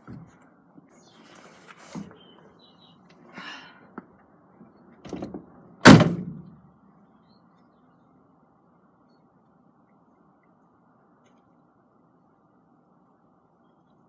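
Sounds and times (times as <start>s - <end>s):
door slamming shut: 5.1s - 6.5s.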